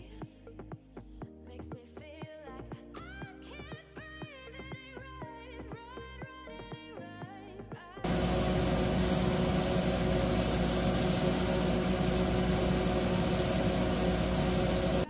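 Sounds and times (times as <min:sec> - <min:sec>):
fish frying in oil: 0:08.0 - 0:15.0
steady mechanical hum: 0:08.0 - 0:15.0.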